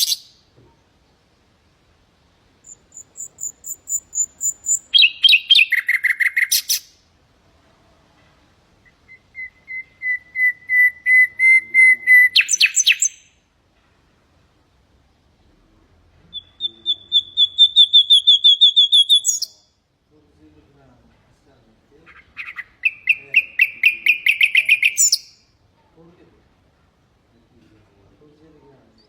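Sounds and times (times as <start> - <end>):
nightingale singing: 0.0 - 0.4, 2.6 - 7.0, 8.8 - 13.4, 16.2 - 19.8, 22.1 - 25.5.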